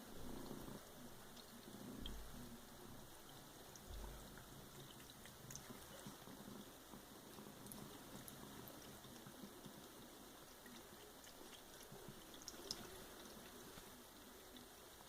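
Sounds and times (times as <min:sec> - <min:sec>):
water trickling from tap: 0:00.1 - 0:15.0
cat lapping water: 0:03.2 - 0:15.0.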